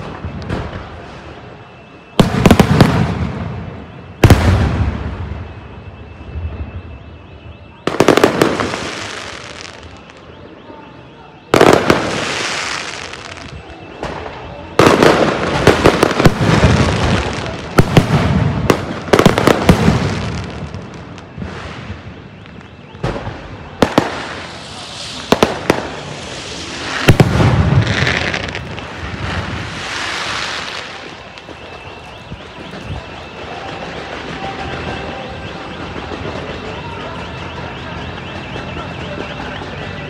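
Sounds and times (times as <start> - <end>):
fireworks bangs and crackles: 0.0 - 40.0
fireworks rushing hiss: 11.6 - 37.2.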